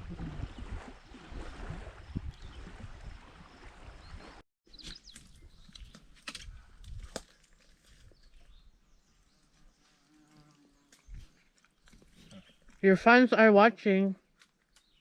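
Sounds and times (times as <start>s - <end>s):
wind noise on microphone: 0.0s - 4.4s, 5.2s - 7.2s.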